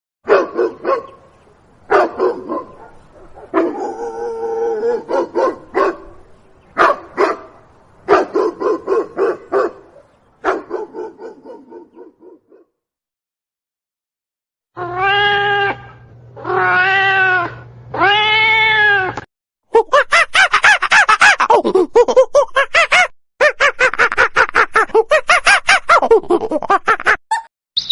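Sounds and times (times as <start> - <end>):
dog barking: 0.3 - 1.3, 1.9 - 4.1, 4.8 - 6.2, 6.8 - 12.7
cat meowing: 16.5 - 19.2.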